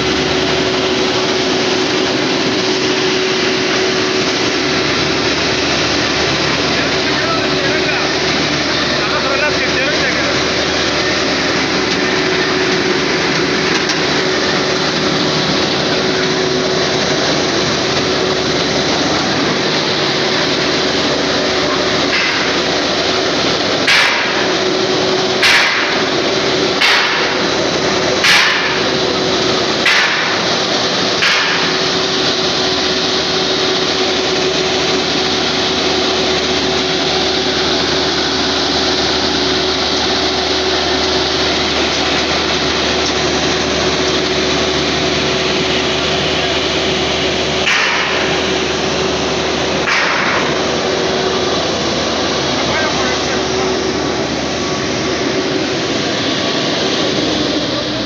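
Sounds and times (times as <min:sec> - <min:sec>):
engine running steadily: 0:00.0 - 0:58.0
sharp knocks: 0:23.8 - 0:24.4, 0:25.4 - 0:26.0, 0:26.8 - 0:27.4, 0:28.2 - 0:28.8, 0:29.8 - 0:30.4, 0:31.2 - 0:31.7, 0:47.6 - 0:48.3, 0:49.8 - 0:50.5.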